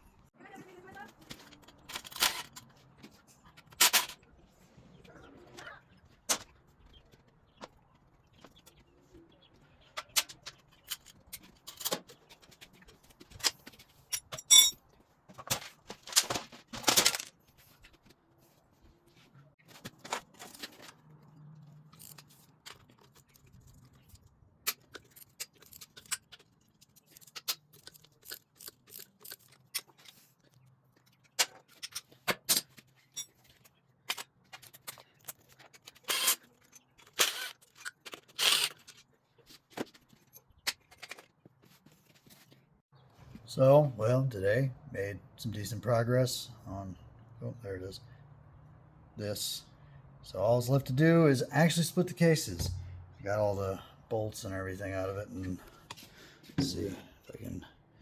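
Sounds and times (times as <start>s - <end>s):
metallic tool clinks and scrapes: 14.1s - 14.9s, 31.7s - 33.5s.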